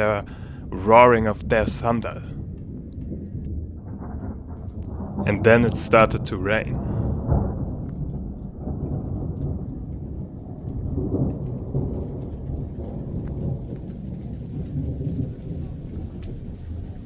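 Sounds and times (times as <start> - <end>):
rain falling: 0.0 - 2.4, 4.6 - 17.0
rolling thunder: 6.6 - 17.0.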